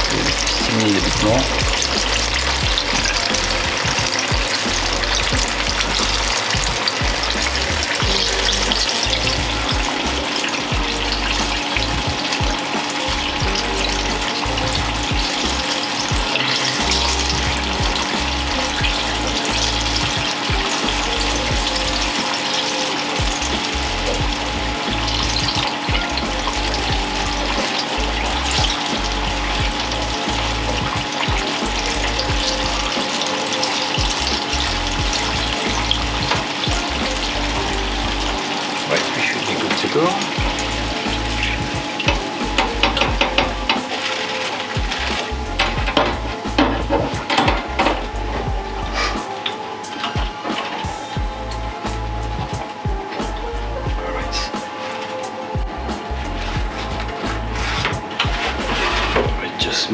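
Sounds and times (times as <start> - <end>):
food deep-frying in oil: 0.0 - 53.5.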